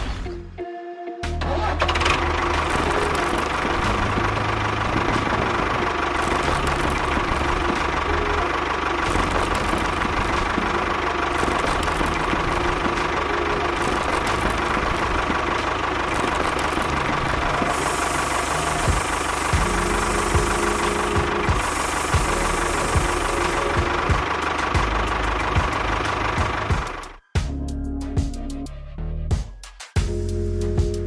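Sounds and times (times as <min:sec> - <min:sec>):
engine idling roughly: 0:01.4 - 0:27.2
hiss: 0:17.7 - 0:23.8.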